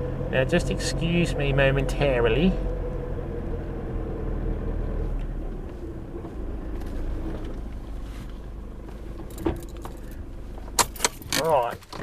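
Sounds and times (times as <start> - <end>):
vehicle engine low rumble: 0.0 - 12.0.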